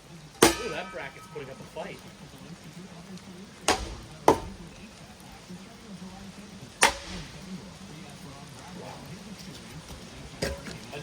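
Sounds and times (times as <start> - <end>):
low steady hum: 0.0 - 11.0
ceiling fan being struck: 0.4 - 1.6, 3.7 - 4.7, 6.8 - 7.5.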